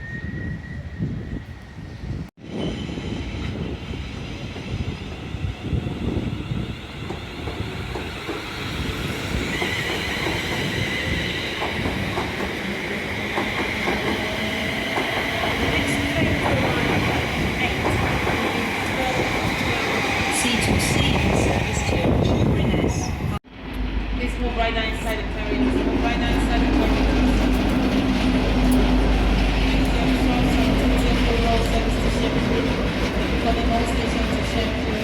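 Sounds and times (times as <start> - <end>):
train wheels rumbling on track: 2.3 - 35.0
rail clicks: 7.0 - 23.9, 25.0 - 35.0.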